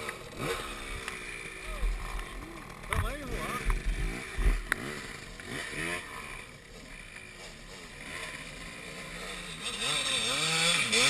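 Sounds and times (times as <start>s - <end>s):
motocross engine running: 0.0s - 11.0s.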